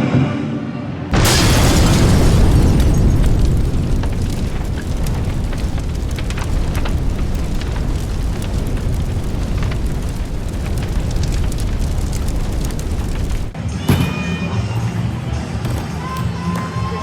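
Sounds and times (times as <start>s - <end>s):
steady rumble: 1.2s - 13.6s.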